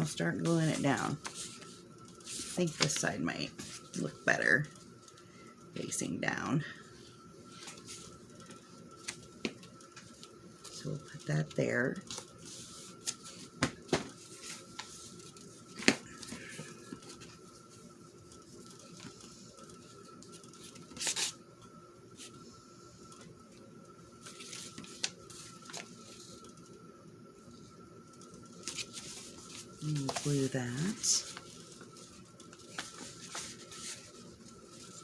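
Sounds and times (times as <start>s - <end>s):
faint steady whine: 0.0s - 35.0s
paper rustling: 0.4s - 4.0s, 24.2s - 26.4s, 28.6s - 35.0s.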